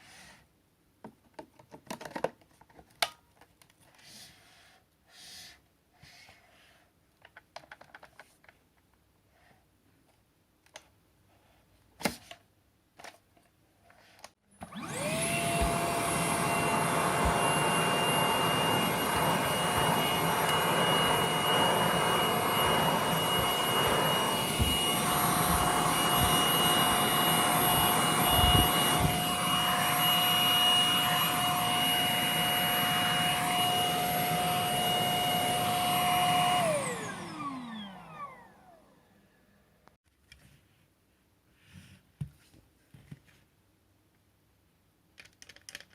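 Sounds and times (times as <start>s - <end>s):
vacuum motor whining: 14.6s - 39.3s.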